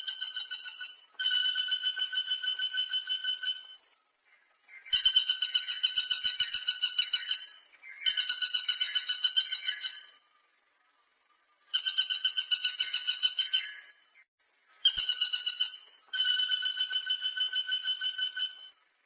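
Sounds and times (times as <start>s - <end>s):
woodpecker rattling call: 0.0s - 10.2s, 11.7s - 14.2s, 14.8s - 18.8s.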